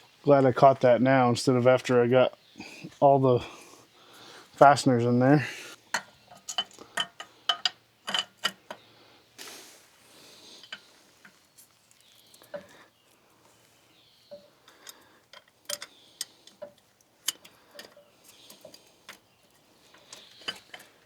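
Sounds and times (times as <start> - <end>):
hand tools clicking and tapping: 5.9 - 8.8, 14.3 - 21.0.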